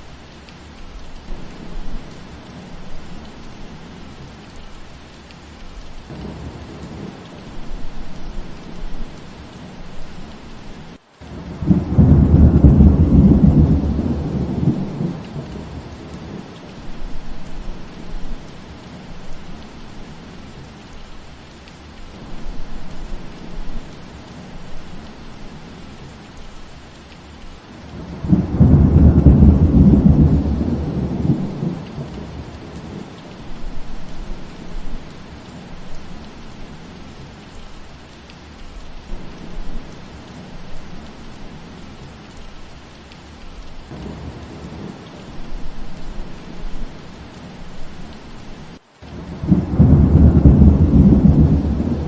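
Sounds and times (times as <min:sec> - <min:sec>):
steady rain: 0:00.0 - 0:52.0
thunder rumbling: 0:06.0 - 0:20.3, 0:27.8 - 0:37.0, 0:43.9 - 0:52.0.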